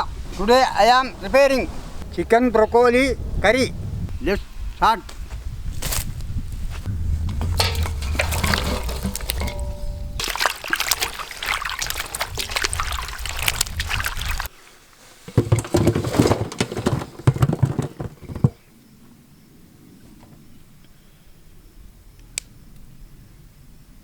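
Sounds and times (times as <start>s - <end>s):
clattering: 7.2s - 10.2s, 15.3s - 18.6s
liquid pouring and splashing: 7.4s - 14.5s.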